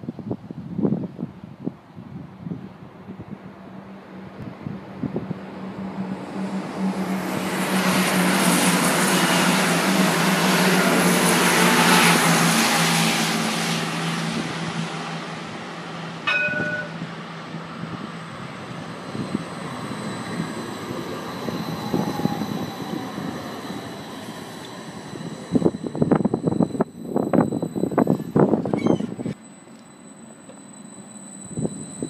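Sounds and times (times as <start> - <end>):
tram rumbling: 0.1 - 32.0
passenger train passing: 0.2 - 32.0
short ding: 16.3 - 17.1.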